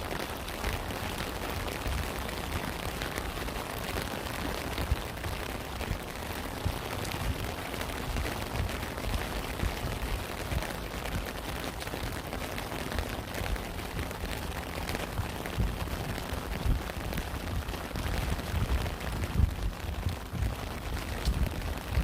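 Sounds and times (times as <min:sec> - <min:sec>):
rain drops pattering: 0:00.0 - 0:22.0
heavy low thuds: 0:15.1 - 0:20.6.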